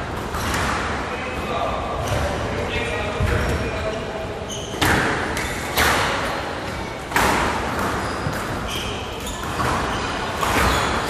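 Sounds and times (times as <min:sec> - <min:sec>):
squash ball hits: 0:04.8 - 0:06.4, 0:07.0 - 0:08.7, 0:09.3 - 0:11.0.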